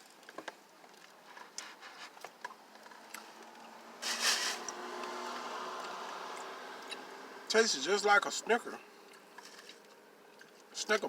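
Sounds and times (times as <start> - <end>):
spoon scraping in a cup: 4.0 - 4.7.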